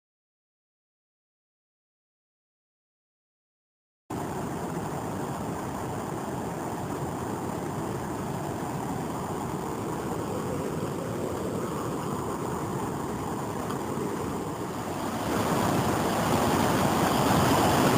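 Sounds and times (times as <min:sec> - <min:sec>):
waterfall rushing: 0:04.1 - 0:17.9.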